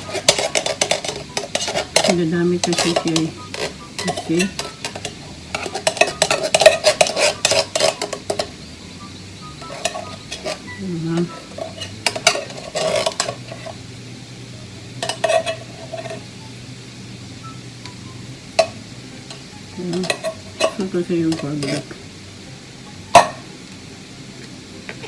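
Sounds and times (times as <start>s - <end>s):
utensil scraping and knocking pan: 0.0s - 8.6s, 9.6s - 13.8s, 15.0s - 16.2s, 18.6s - 22.0s
food sizzling in a pan: 0.0s - 25.0s.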